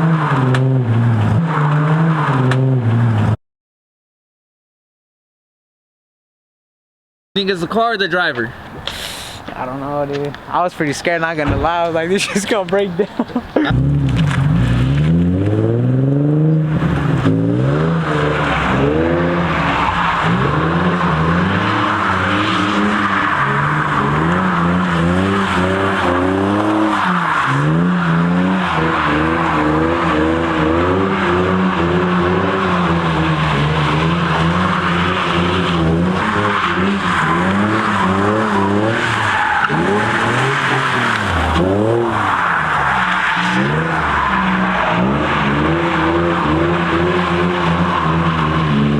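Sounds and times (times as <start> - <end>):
tyres skidding and squealing: 0.0 - 3.4, 7.4 - 48.9
car engine revving: 13.7 - 48.9.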